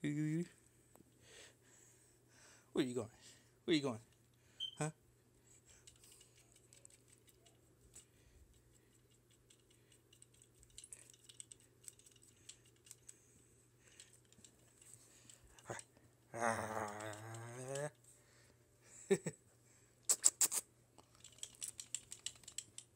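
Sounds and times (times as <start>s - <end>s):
faint clicks and ticks: 5.7s - 18.1s, 21.0s - 22.9s.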